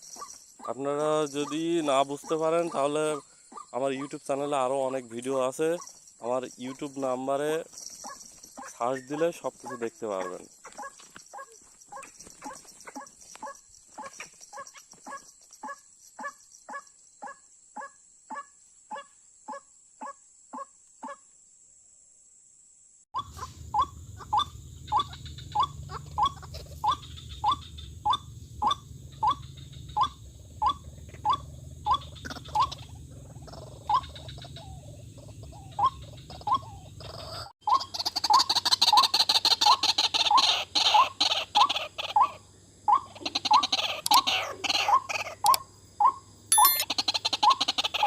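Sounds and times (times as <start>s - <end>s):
steady low hum: 23.2s - 36.9s
waterhen calling: 23.2s - 45.6s.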